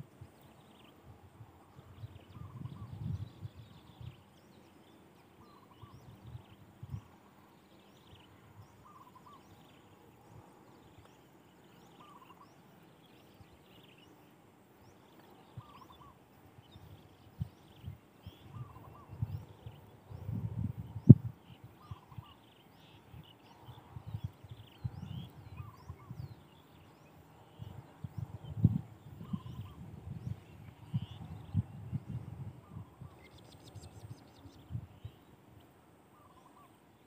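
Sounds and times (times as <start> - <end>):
bird call: 8.1 - 9.9, 11.7 - 12.7, 15.2 - 16.2, 17.6 - 19.8, 21.5 - 23.9, 36.1 - 36.8.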